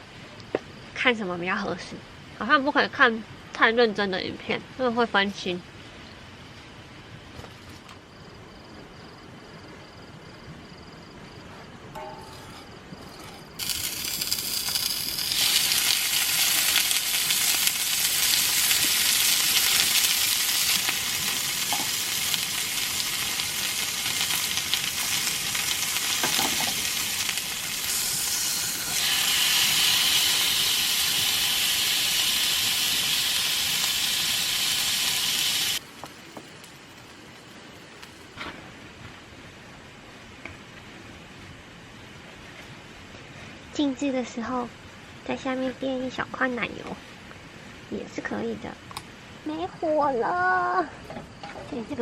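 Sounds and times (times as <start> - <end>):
food sizzling in a pan: 13.5 - 38.3.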